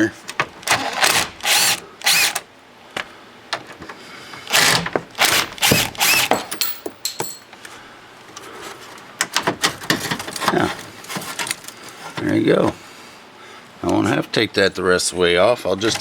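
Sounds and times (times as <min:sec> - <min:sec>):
cordless drill whirring: 0:00.7 - 0:02.4, 0:04.5 - 0:06.4.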